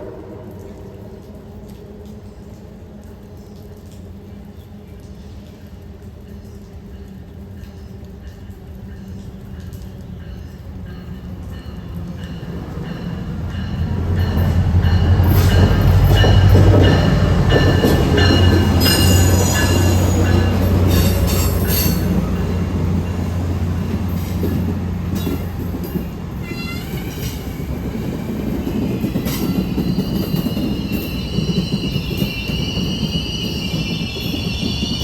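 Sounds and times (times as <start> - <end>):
diesel locomotive drone: 0.0 - 35.0
wheel squeal on rails: 15.4 - 22.6, 26.4 - 27.7, 29.2 - 35.0.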